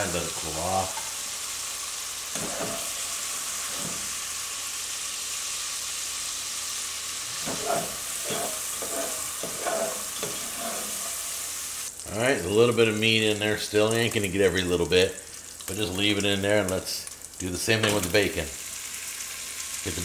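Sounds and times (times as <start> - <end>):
sausage sizzling in a pot: 0.0 - 20.0
utensil scraping a pot: 7.3 - 11.4.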